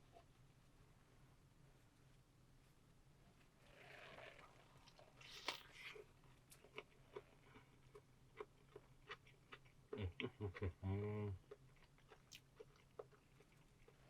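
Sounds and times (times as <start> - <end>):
person chewing crunchy food: 5.2 - 10.8, 11.4 - 14.0.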